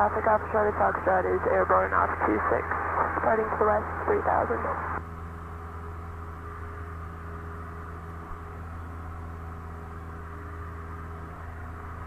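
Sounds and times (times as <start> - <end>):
airplane engine and propeller droning: 0.0 - 12.0.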